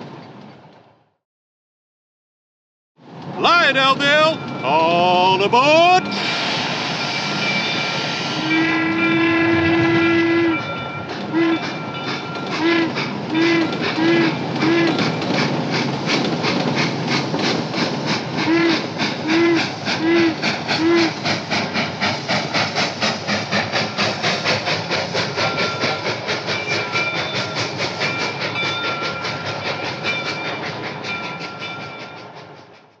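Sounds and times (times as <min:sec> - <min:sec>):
rhythmic train chugging: 0:03.0 - 0:33.0
toy train steam whistle: 0:05.2 - 0:15.2, 0:18.4 - 0:21.2.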